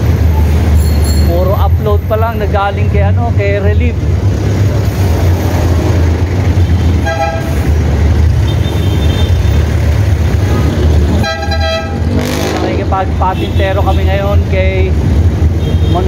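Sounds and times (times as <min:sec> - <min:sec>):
road traffic rumble: 0:00.0 - 0:16.0
vehicle horn toot: 0:07.0 - 0:07.6, 0:11.2 - 0:12.0.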